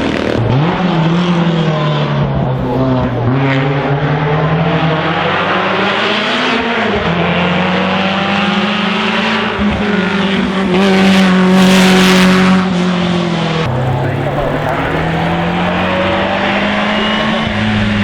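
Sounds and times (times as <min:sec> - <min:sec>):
racing car engine accelerating: 0:13.7 - 0:18.0.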